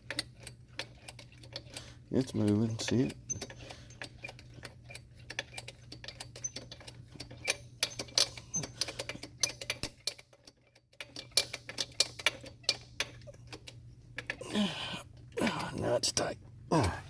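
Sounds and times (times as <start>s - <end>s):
steady low hum: 12.0s - 17.0s.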